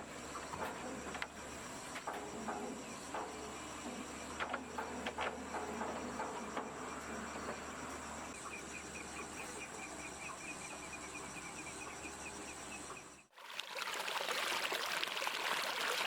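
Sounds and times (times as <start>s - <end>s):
insects chirring chorus: 0.0s - 13.3s.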